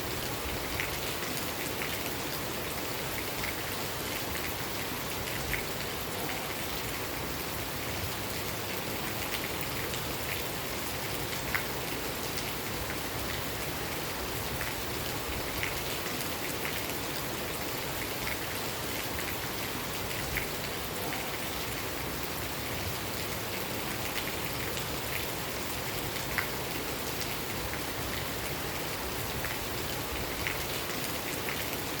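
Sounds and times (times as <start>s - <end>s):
steady rain: 0.0s - 32.0s
raindrops ticking on a surface: 8.3s - 32.0s.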